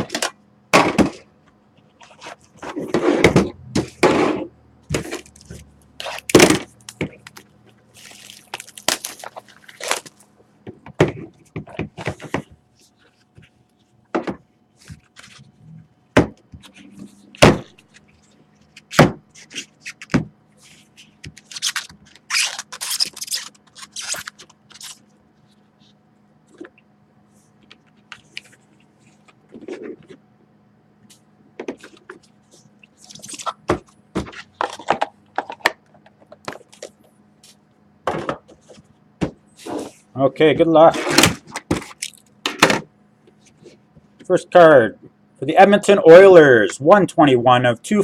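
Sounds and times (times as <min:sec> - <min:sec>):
crinkling and rustling wrapper: 0:05.2 - 0:10.4, 0:21.3 - 0:25.9.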